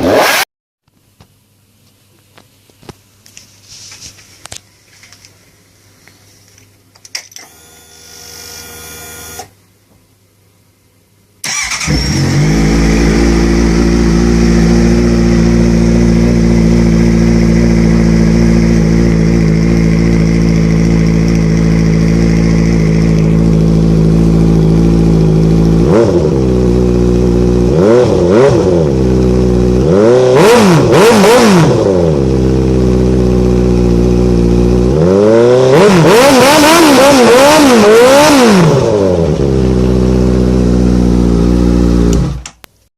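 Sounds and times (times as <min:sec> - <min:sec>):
motorcycle engine idling and revving: 0:00.0 - 0:00.4, 0:11.5 - 0:42.5.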